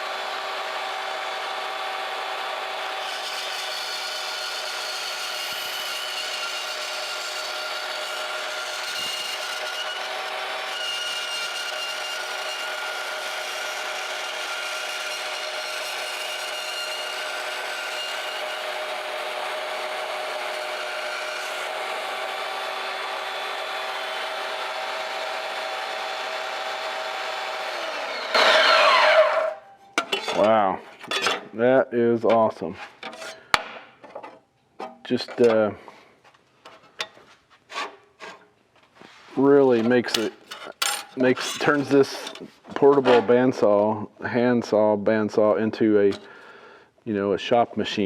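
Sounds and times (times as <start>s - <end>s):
band saw motor whine: 0.0s - 29.6s
saw blade cutting metal: 0.0s - 30.5s, 39.7s - 42.6s.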